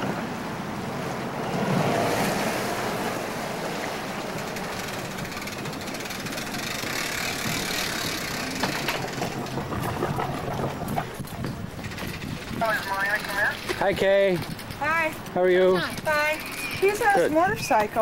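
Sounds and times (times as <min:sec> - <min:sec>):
wind on microphone: 0:05.0 - 0:15.2.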